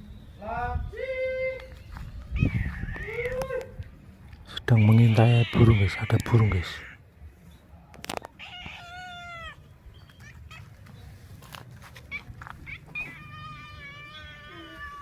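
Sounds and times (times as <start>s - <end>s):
cat meowing: 8.4s - 9.6s, 12.1s - 15.0s.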